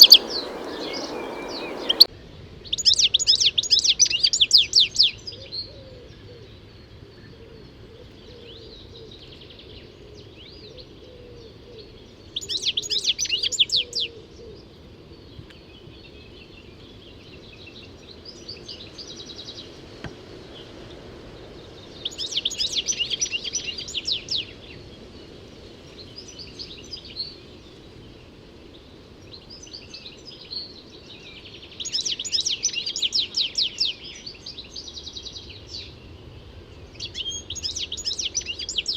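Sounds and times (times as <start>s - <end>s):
goldfinch twittering song: 0.0s - 2.1s.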